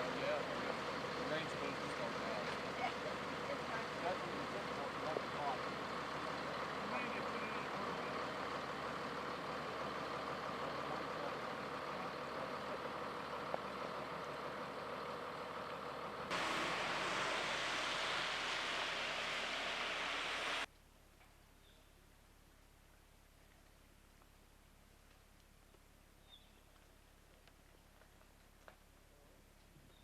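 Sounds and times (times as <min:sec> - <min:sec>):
truck engine running: 0:00.0 - 0:20.7
rushing noise: 0:16.3 - 0:20.7.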